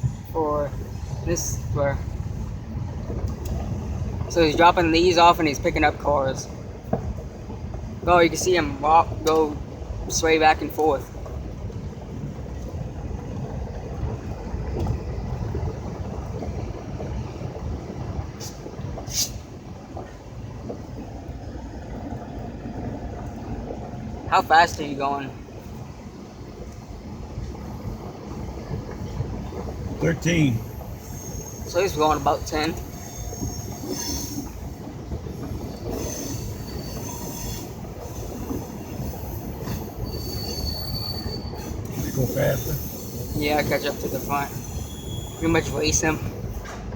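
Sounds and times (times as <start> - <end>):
car rumbling from inside: 0.0 - 37.0, 37.6 - 46.9
faint high wheel squeal: 29.6 - 46.8.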